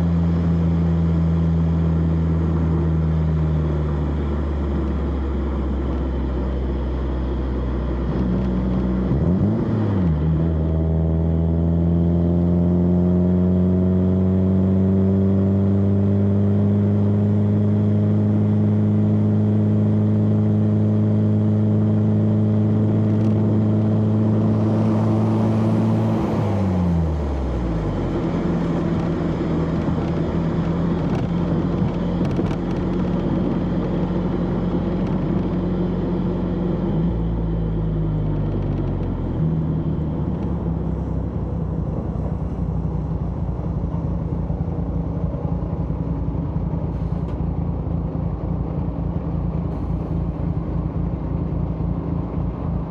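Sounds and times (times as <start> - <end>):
road noise: 0.0 - 52.9
car engine exhaust revving: 21.8 - 35.4.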